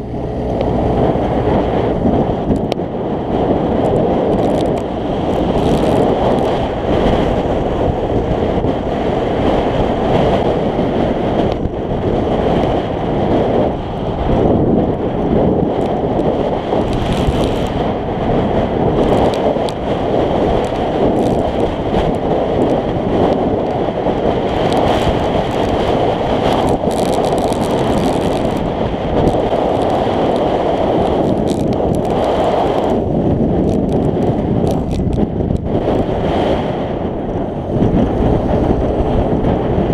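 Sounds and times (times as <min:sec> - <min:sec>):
scooter engine whine: 0:00.0 - 0:39.9
wind rushing over microphone: 0:00.0 - 0:39.9.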